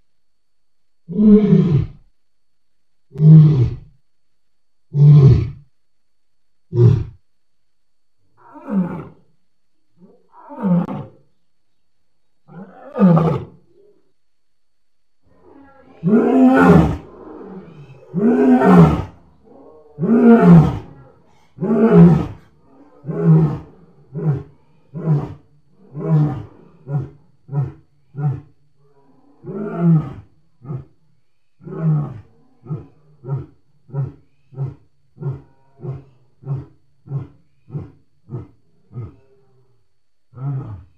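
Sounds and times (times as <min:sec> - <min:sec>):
lion roaring: 0:12.5 - 0:13.6, 0:15.3 - 0:31.0, 0:31.6 - 0:39.6, 0:40.3 - 0:40.9.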